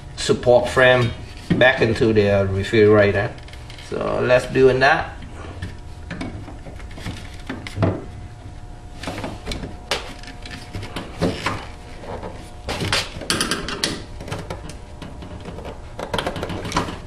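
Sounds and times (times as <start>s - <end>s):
parts knocking and clicking: 9.1s - 17.0s.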